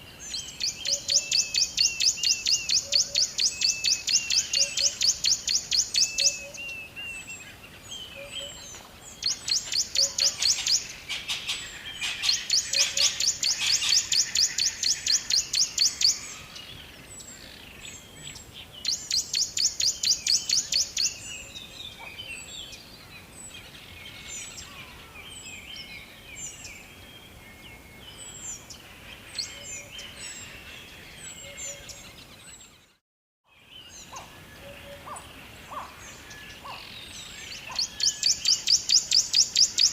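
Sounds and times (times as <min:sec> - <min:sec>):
rapid pulsing bird call: 0:08.2 - 0:16.6, 0:34.0 - 0:39.9.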